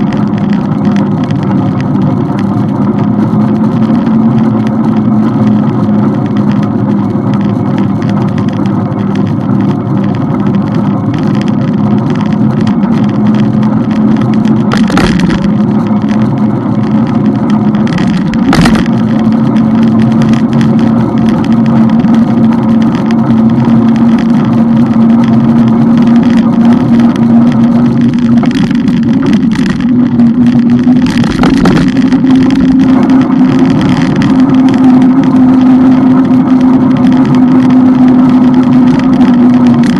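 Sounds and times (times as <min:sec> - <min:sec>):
motorcycle engine cruising: 0:00.0 - 0:39.9
road and wind noise: 0:00.0 - 0:39.9
sharp knocks: 0:14.6 - 0:15.6, 0:17.9 - 0:19.0.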